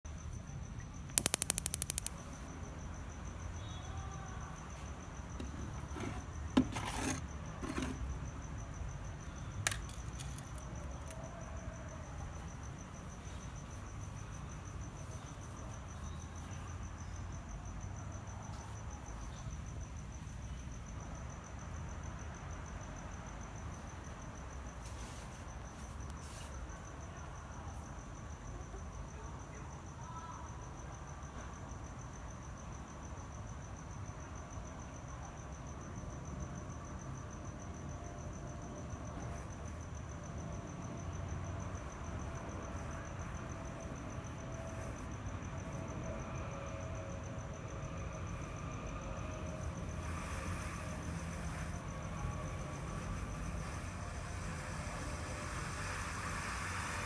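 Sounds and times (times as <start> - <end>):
high-pitched insect trill: 0.1 - 6.6, 7.2 - 57.0
quick clicks: 1.1 - 2.3.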